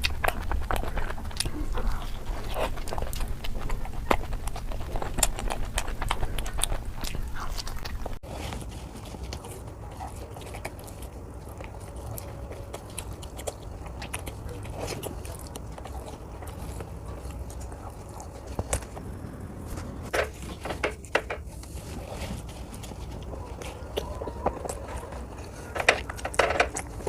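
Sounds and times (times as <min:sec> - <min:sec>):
wet mouth clicks: 0:00.0 - 0:08.2
person chewing food: 0:00.0 - 0:27.0.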